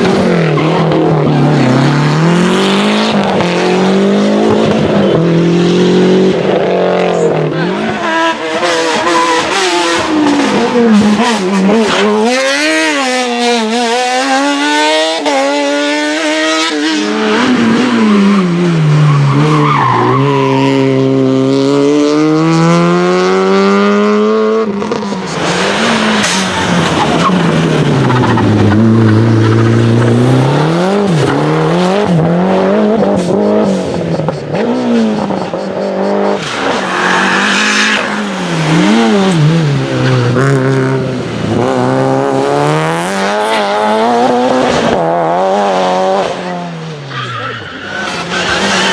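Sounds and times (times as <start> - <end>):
race car engines revving: 0.0 - 48.9
tyre squeal: 46.9 - 48.9.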